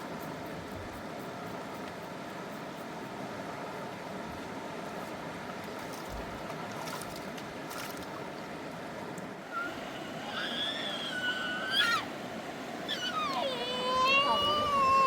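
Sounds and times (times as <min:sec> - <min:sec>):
fast river rushing: 0:09.4 - 0:15.0
high wavering vocal sound: 0:12.9 - 0:15.0.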